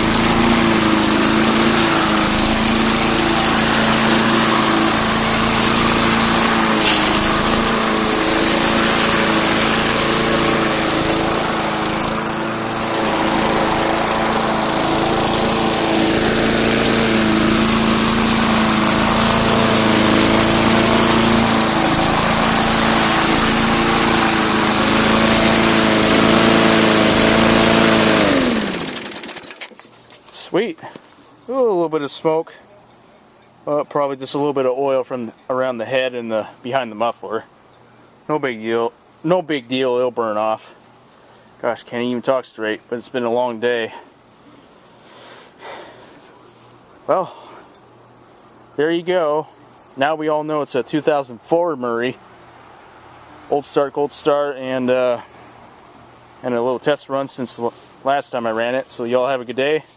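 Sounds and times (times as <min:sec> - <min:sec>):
lawn mower engine running: 0:00.0 - 0:30.5.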